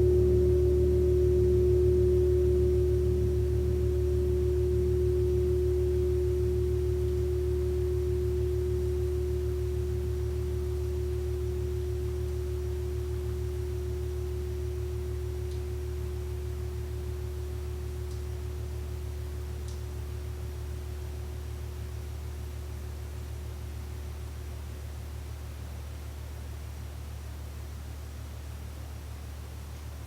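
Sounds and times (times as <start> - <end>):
gong ringing: 0.0 - 17.8
low wavering hum: 0.0 - 24.2.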